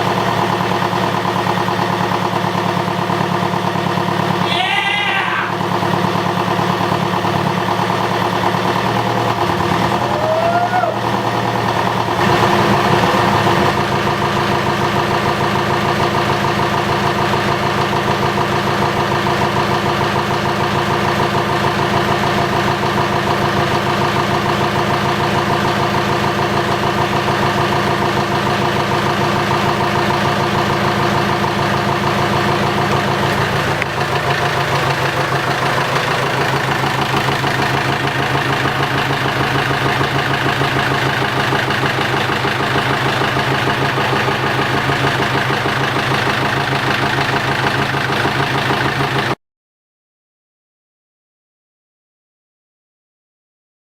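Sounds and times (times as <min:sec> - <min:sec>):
marine diesel engine running: 0:00.0 - 0:49.4.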